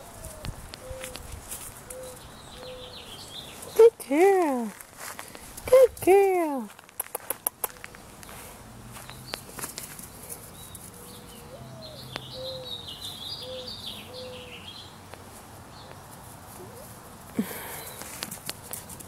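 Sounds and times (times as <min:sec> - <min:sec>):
low cooing bird: 0:00.0 - 0:03.8, 0:10.3 - 0:14.7, 0:16.5 - 0:18.2
bird twittering song: 0:01.9 - 0:03.8, 0:09.0 - 0:15.0.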